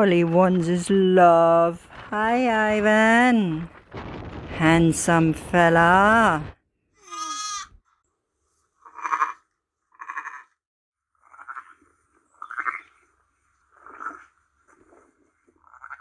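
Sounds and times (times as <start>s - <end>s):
lambs bleating: 7.0s - 7.8s.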